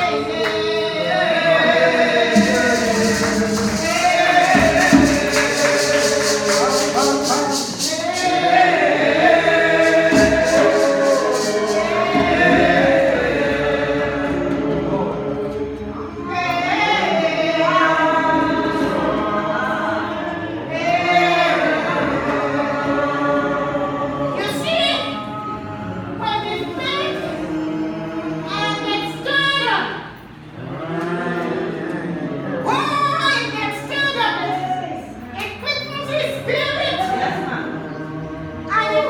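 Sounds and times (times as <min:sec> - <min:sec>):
congregation singing: 0:00.0 - 0:39.0
tambourine shaken: 0:02.3 - 0:13.5.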